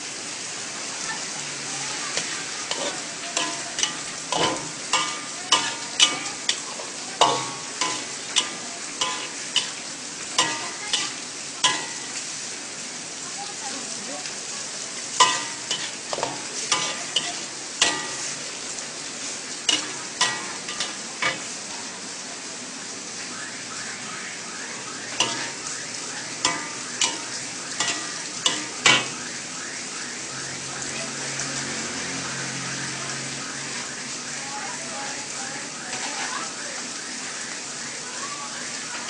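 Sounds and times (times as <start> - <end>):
noodles sizzling in a wok: 0.0 - 39.0
metal spatula scraping a wok: 2.1 - 12.2, 15.2 - 18.6, 19.2 - 21.6, 25.1 - 25.7, 26.4 - 29.2.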